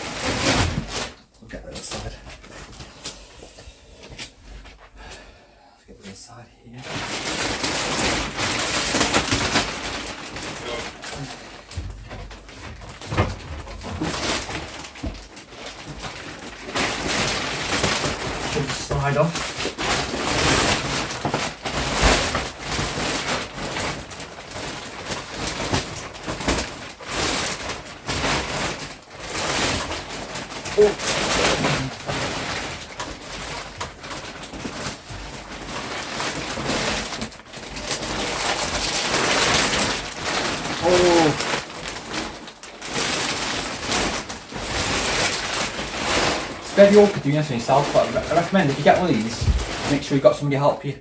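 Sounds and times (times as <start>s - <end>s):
plastic wrapping rustling: 0.0s - 51.0s
dull thumps: 49.2s - 50.0s.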